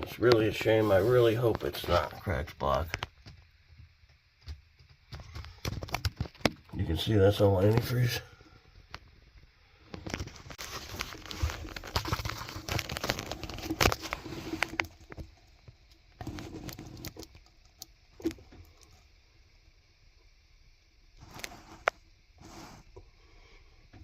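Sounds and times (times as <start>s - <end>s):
close rustling and crackling: 0.0s - 3.7s, 4.3s - 8.2s, 9.9s - 19.1s, 21.2s - 23.0s.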